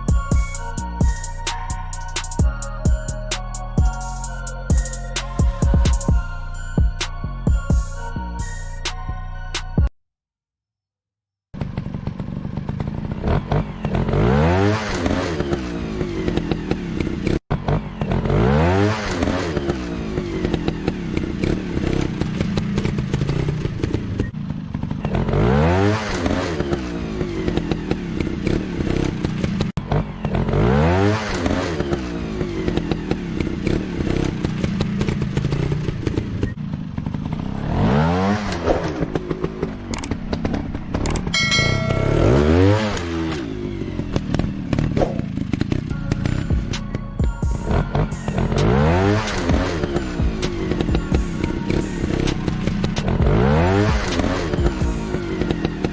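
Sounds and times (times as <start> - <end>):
motorcycle engine revving: 11.5 - 55.9
sharp clicks: 39.9 - 40.2, 41.0 - 41.3.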